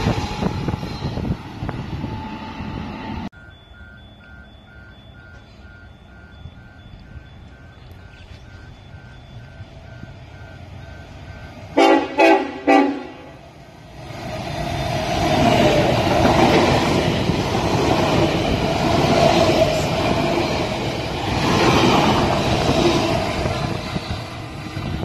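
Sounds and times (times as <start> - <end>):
train passing at speed: 0.0 - 25.0
train horn toots: 11.7 - 13.4.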